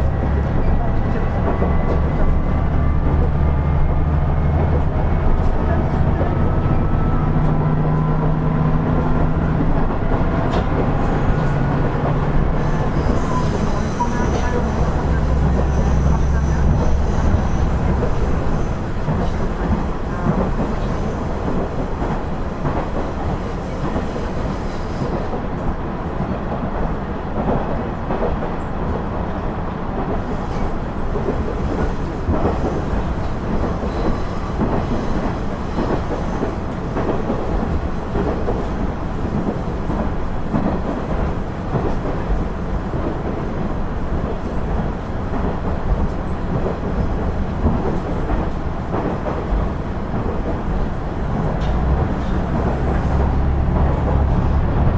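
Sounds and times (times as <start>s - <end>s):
diesel railcar engine rumble: 0.0s - 54.9s.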